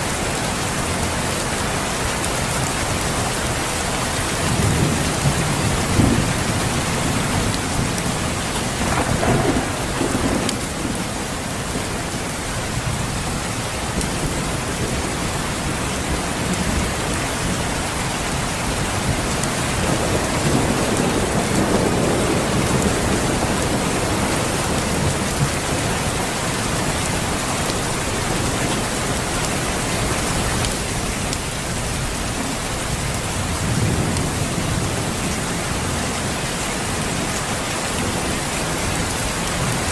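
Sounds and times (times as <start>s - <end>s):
steady rain: 0.0s - 39.9s
thunder rolling: 4.5s - 12.2s.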